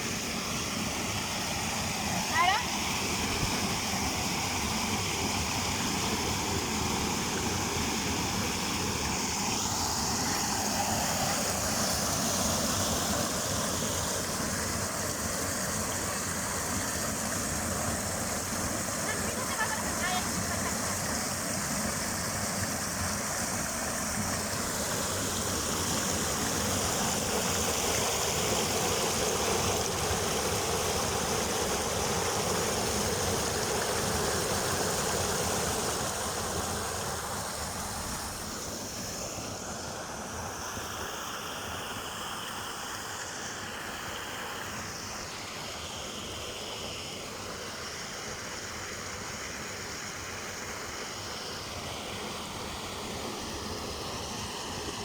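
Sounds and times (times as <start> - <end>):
river water flowing over rocks: 0.0 - 55.0.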